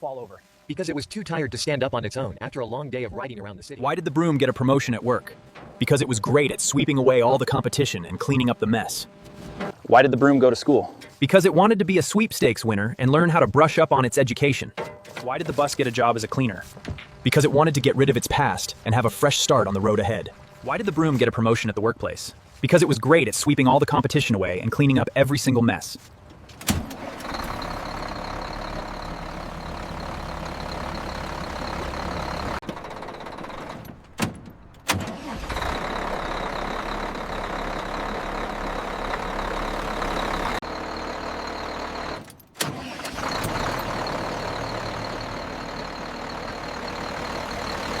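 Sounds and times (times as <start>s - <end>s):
bus engine humming: 3.9s - 9.8s, 25.6s - 48.0s.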